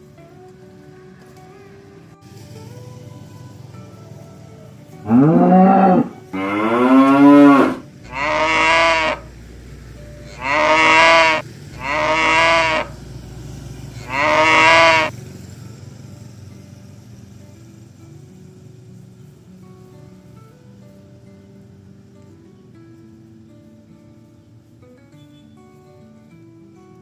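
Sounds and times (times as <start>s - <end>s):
oxen mooing: 5.0s - 9.3s, 10.3s - 13.0s, 14.0s - 15.1s.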